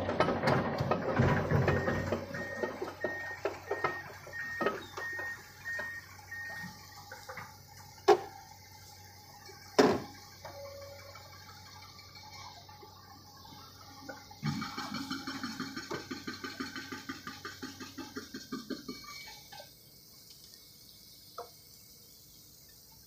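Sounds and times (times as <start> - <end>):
faint beeps: 1.7 - 6.8, 10.5 - 11.3.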